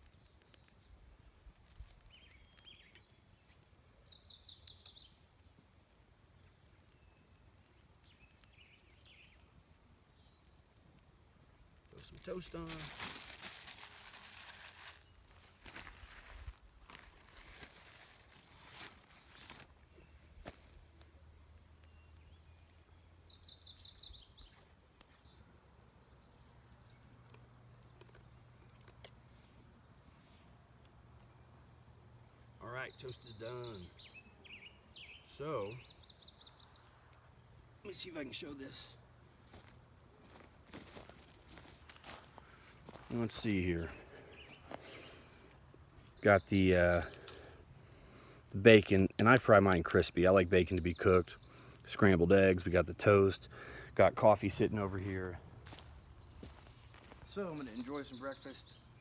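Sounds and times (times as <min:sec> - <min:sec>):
bird chirping calls: 0:00.0 - 0:05.6, 0:21.0 - 0:30.6, 0:32.4 - 0:39.0, 0:43.1 - 0:45.4, 0:46.0 - 0:47.7, 0:48.6 - 0:55.3, 0:56.7 - 0:59.0
faint outdoor background noise: 0:00.0 - 0:59.0
songbird trilling: 0:03.9 - 0:05.3, 0:21.8 - 0:24.5, 0:32.8 - 0:36.9.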